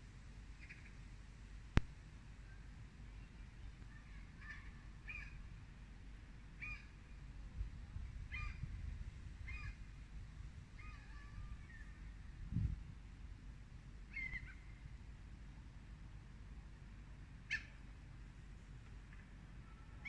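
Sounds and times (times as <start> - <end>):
bird calls: 0.6 - 1.0, 3.2 - 5.4, 14.1 - 14.8, 17.5 - 17.8.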